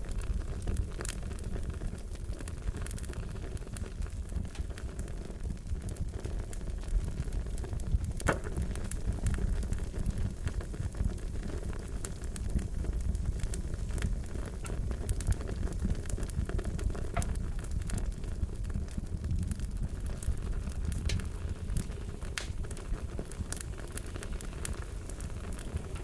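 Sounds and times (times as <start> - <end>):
fire crackling: 0.0 - 26.0
sharp pops: 22.3 - 22.7.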